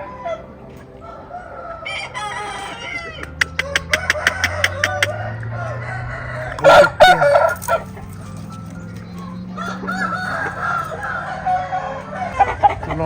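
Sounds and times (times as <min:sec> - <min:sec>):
chickens clucking: 0:00.0 - 0:13.0
rooster crowing: 0:00.1 - 0:13.0.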